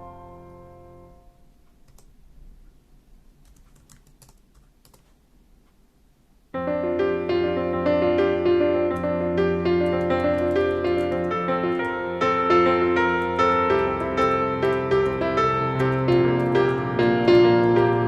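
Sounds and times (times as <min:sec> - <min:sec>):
piano music: 0:00.0 - 0:01.5, 0:06.6 - 0:18.0
computer keyboard typing: 0:01.8 - 0:02.1, 0:03.4 - 0:05.2, 0:08.9 - 0:18.0.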